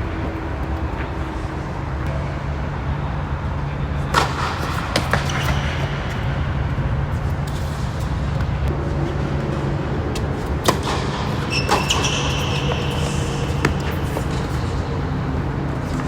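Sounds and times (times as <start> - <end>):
tennis ball struck by rackets: 10.6 - 14.9.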